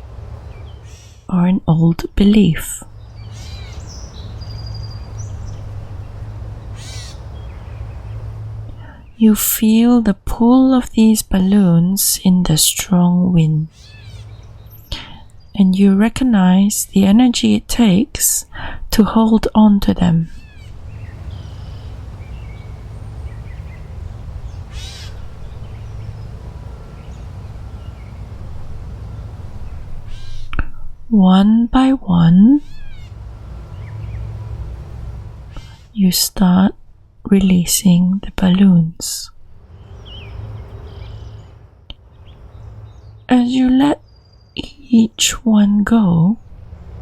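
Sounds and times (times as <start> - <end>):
steady low rumble: 0.0 - 47.0
short high bird calls: 2.9 - 9.0, 13.7 - 15.6, 20.3 - 30.9, 32.6 - 36.0, 39.8 - 43.1
crow cawing: 3.2 - 6.0, 6.7 - 7.8, 13.7 - 14.7, 20.3 - 30.6.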